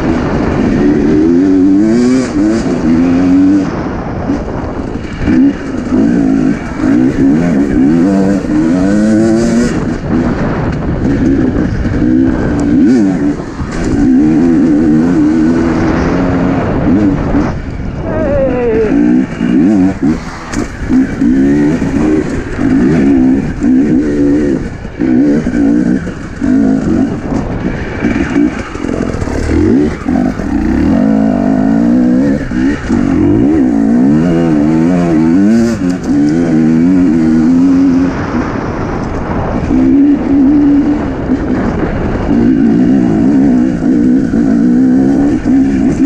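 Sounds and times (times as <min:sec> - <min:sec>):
dirt bike engine revving: 0:00.0 - 0:46.0.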